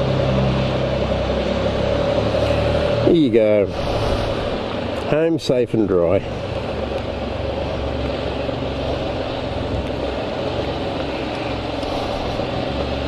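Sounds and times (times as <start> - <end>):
motorcycle engine idling: 6.0 - 13.0.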